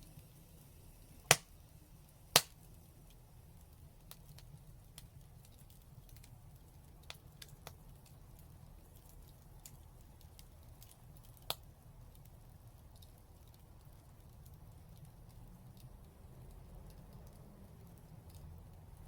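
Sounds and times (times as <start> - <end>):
fire crackling in fireplace: 0.0 - 19.0
sharp pops: 1.3 - 1.5, 2.3 - 2.6.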